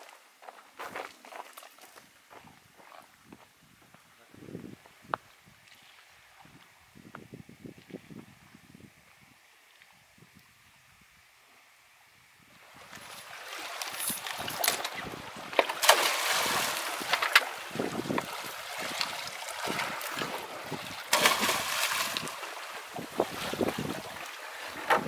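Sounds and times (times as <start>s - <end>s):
sea water splashing on rocks: 12.8s - 25.0s.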